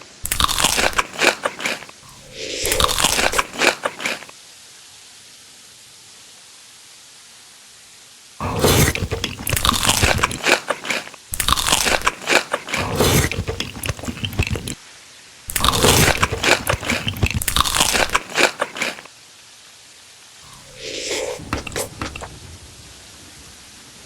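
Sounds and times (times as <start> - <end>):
crunchy food being chewed: 0.0 - 4.4, 8.4 - 14.8, 15.5 - 19.1, 20.4 - 22.3.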